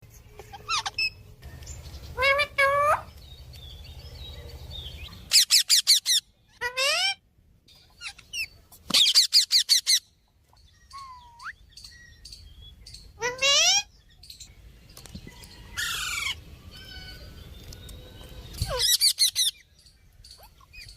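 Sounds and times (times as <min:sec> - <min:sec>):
parrot voice-like calls: 0:02.2 - 0:03.1, 0:05.3 - 0:07.2, 0:13.2 - 0:13.9.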